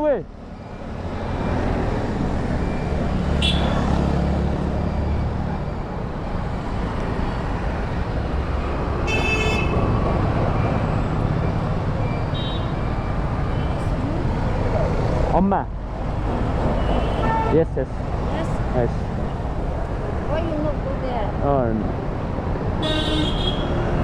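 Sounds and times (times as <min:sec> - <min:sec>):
street traffic engines: 0:00.0 - 0:24.0
vehicle horn honking: 0:03.3 - 0:04.0, 0:09.0 - 0:09.8, 0:12.3 - 0:12.8, 0:16.8 - 0:17.6, 0:22.8 - 0:23.8.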